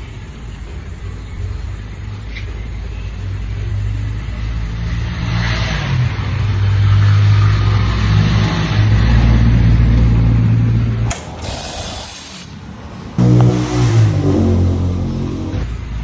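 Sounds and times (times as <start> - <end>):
motorcycle engine running: 13.2 - 15.8.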